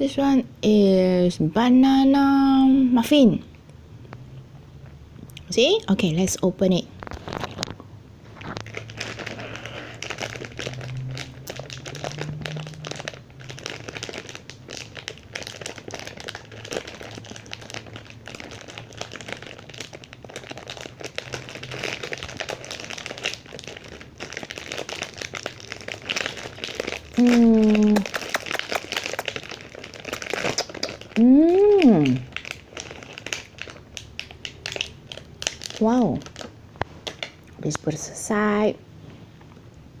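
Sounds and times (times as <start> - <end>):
plastic packaging crackling: 6.9 - 37.8.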